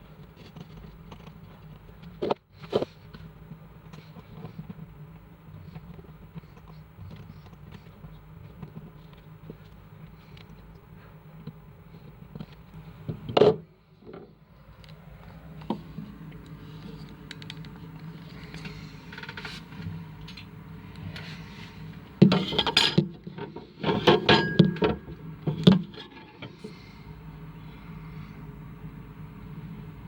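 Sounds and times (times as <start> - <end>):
steady low hum: 0.0 - 30.0
objects clattering and knocking: 22.2 - 26.6.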